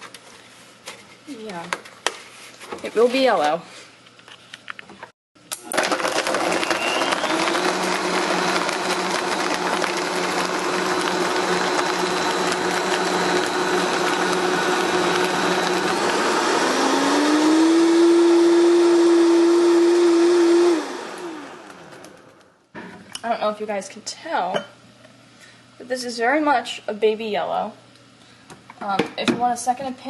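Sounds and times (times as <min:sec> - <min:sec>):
blender running: 0:05.5 - 0:22.5.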